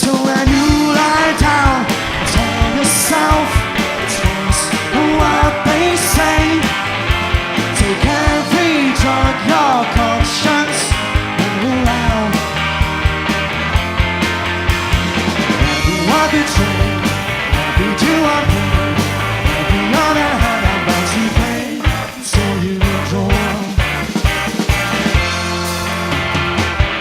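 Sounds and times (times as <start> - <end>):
bass and guitar: 0.0 - 27.0
drum kit beat: 0.0 - 27.0
sliding melody line: 0.4 - 10.0.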